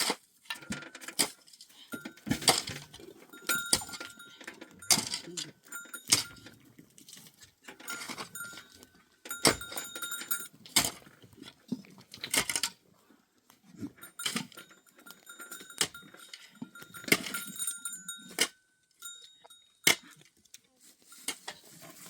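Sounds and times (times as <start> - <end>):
sharp knocks and clatter: 0.0 - 6.6, 7.7 - 11.1.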